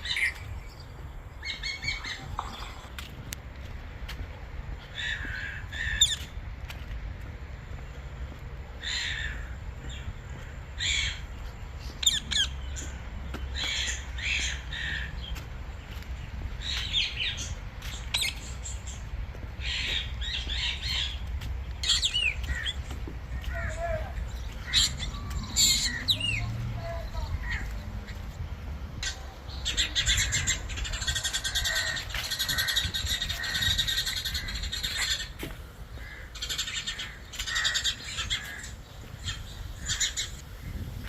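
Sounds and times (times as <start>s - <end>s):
birds squawking: 8.8s - 15.4s, 19.6s - 28.3s, 29.0s - 41.0s.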